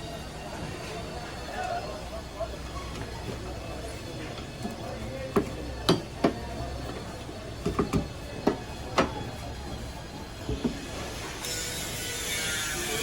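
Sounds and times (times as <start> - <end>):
tools knocking and clicking: 4.4 - 9.3.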